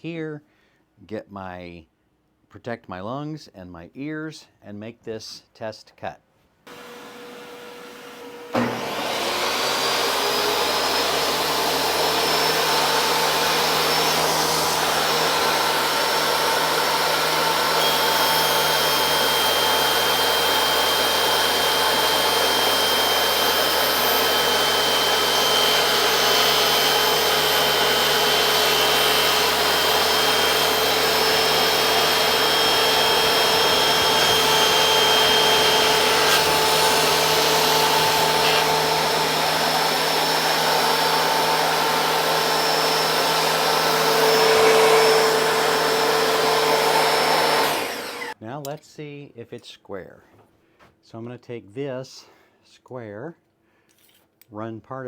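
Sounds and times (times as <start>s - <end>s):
shop vacuum running: 6.7s - 48.4s.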